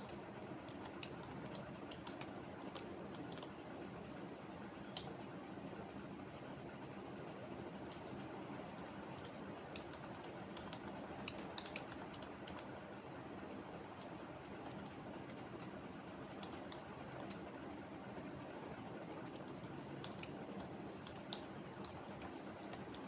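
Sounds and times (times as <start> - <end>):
keyboard typing: 0.0 - 3.6, 7.9 - 12.7, 14.0 - 17.4, 19.3 - 23.0
low background noise: 0.0 - 23.0.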